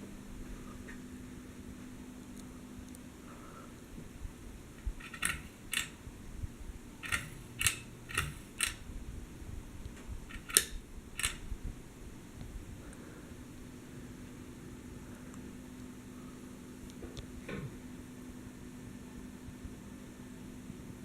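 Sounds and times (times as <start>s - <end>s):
faint fan motor hum: 0.0s - 21.0s
ceiling fan pull-chain clicking: 4.8s - 6.1s, 7.0s - 8.9s, 9.8s - 11.5s.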